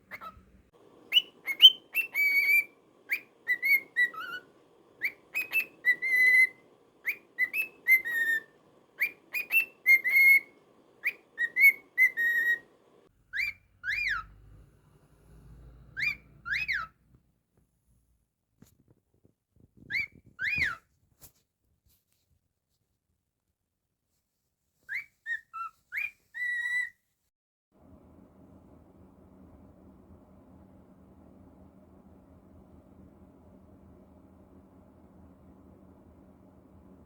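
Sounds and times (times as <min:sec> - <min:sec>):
cockatiel whistling a tune: 0:00.1 - 0:00.4, 0:01.1 - 0:12.7, 0:13.3 - 0:14.6, 0:15.8 - 0:17.0, 0:19.8 - 0:20.8, 0:24.9 - 0:27.0.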